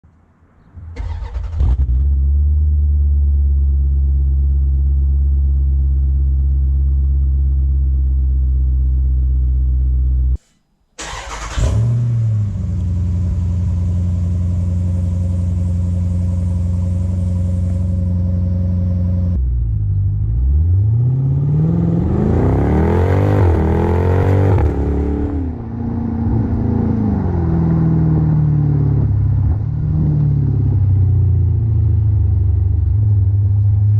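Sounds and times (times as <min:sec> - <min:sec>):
car engine starting and idling: 0:00.7 - 0:33.9
engine revving: 0:11.0 - 0:19.4, 0:20.1 - 0:31.1.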